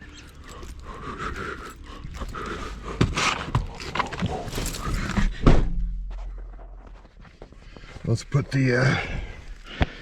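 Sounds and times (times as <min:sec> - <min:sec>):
rustling and handling noises: 0:00.0 - 0:05.3
loud heavy thud: 0:05.2 - 0:06.3.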